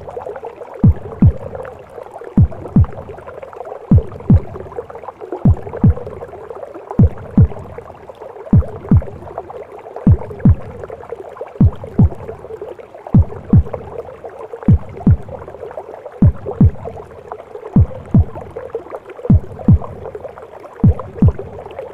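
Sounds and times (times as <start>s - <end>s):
heartbeat thuds: 0.8s - 1.6s, 2.3s - 3.2s, 3.9s - 4.7s, 5.4s - 6.2s, 7.0s - 7.8s, 8.5s - 9.4s, 10.1s - 10.9s, 11.6s - 12.4s, 13.1s - 14.0s, 14.7s - 15.5s, 16.2s - 17.1s, 17.8s - 18.6s, 19.3s - 20.2s, 20.8s - 21.7s.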